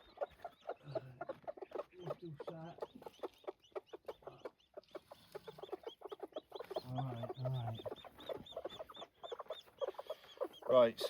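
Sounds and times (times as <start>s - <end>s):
chicks peeping: 0.0s - 11.0s
hens clucking: 0.0s - 11.0s.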